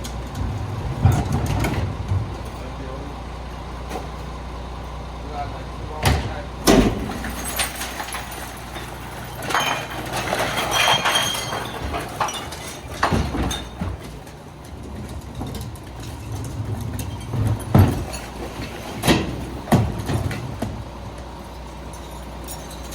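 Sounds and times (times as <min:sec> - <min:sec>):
garbage truck engine running: 0:00.0 - 0:22.9
metal clanking and clinking: 0:06.0 - 0:20.8, 0:21.5 - 0:22.9.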